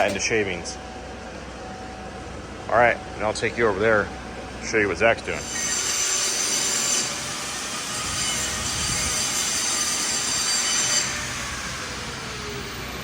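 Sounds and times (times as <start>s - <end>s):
machinery hissing and whining: 0.0s - 13.0s.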